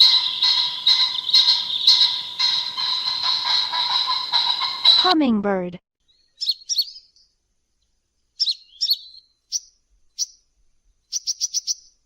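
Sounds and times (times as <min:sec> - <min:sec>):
hummingbird high chirps: 0:00.0 - 0:05.2, 0:06.0 - 0:07.3, 0:08.3 - 0:10.5, 0:11.1 - 0:12.0.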